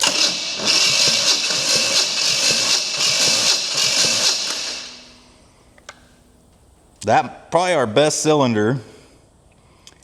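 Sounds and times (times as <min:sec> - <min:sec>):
starter motor cranking engine: 0:00.0 - 0:05.0.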